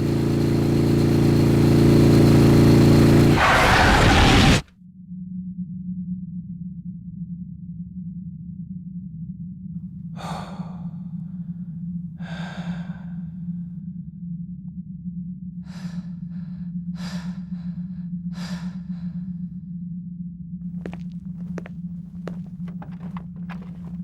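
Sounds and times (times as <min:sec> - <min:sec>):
person breathing heavily: 0:10.2 - 0:11.1, 0:12.2 - 0:13.3, 0:15.7 - 0:19.3
steady low hum: 0:20.8 - 0:24.0.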